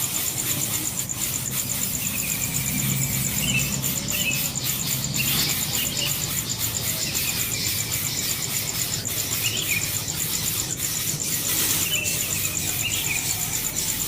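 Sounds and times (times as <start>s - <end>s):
insect trilling: 0.0s - 14.0s
steady background hiss: 0.0s - 14.0s.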